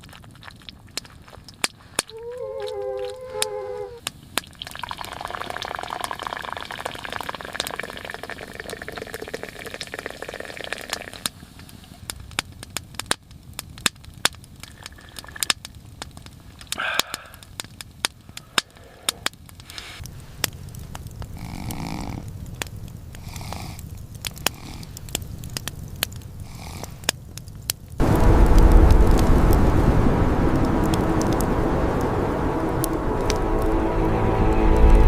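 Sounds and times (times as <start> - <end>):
wood fire crackling: 0.0 - 35.0
puppy whining: 2.1 - 4.0
steady hiss: 16.3 - 27.2.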